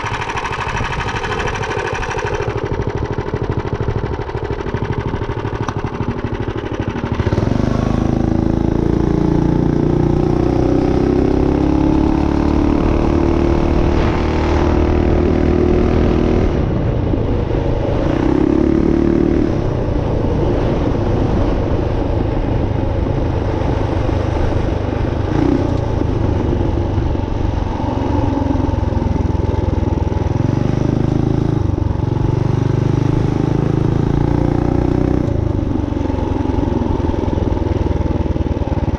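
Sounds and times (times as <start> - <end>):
minibike engine revving: 0.0 - 16.8.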